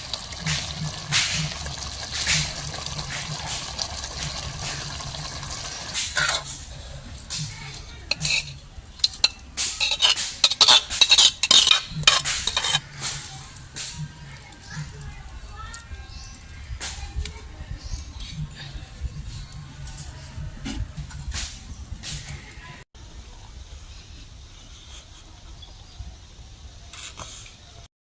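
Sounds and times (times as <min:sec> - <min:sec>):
metal utensils clinking on cookware: 0:06.0 - 0:06.6, 0:07.2 - 0:13.3.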